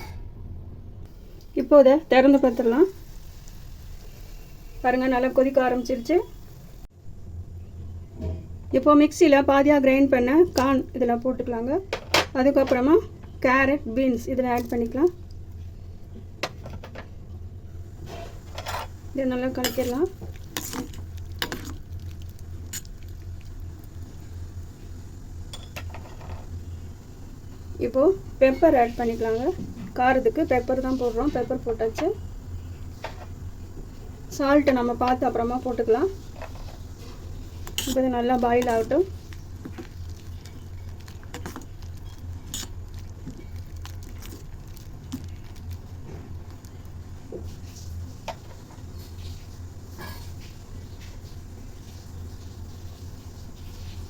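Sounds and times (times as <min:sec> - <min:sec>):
steady low hum: 0:00.0 - 0:50.9
soup boiling in a pan: 0:18.0 - 0:29.2, 0:35.3 - 0:54.0
spoon scraping a pot: 0:19.6 - 0:21.8, 0:36.3 - 0:43.6.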